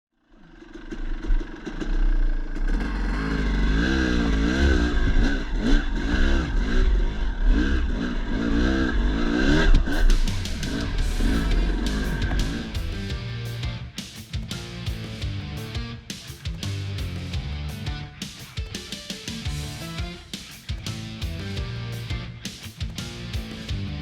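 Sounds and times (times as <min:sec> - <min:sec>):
dirt bike engine revving: 0:00.4 - 0:24.0
steady low rumble: 0:01.1 - 0:14.0.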